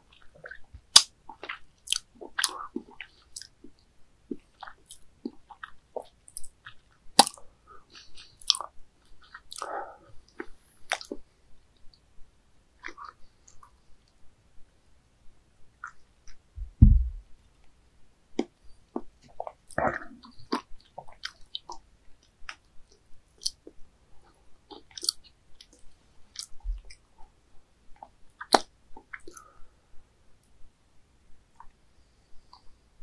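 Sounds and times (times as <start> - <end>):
person chewing squid: 0.2 - 11.2, 18.4 - 21.8, 24.7 - 27.0, 28.0 - 29.5
low thump: 16.6 - 17.2.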